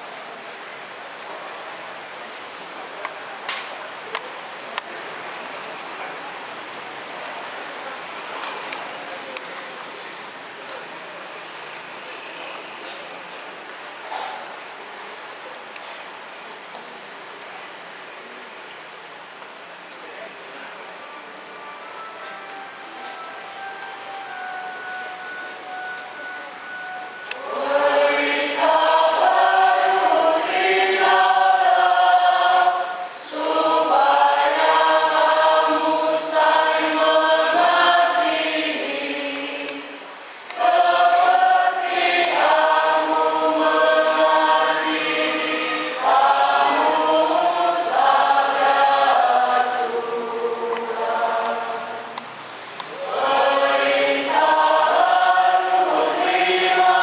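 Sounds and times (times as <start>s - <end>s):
church choir singing: 21.9s - 57.0s.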